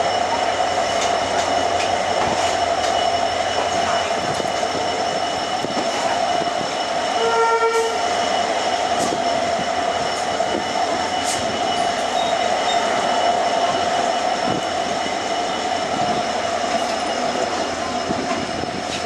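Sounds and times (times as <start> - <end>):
train running on rails: 0.0 - 19.0
train horn blast: 7.2 - 8.0.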